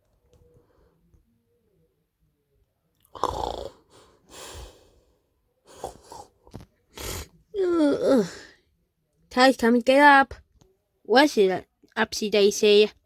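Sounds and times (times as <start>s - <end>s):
person sighing: 7.0s - 8.6s.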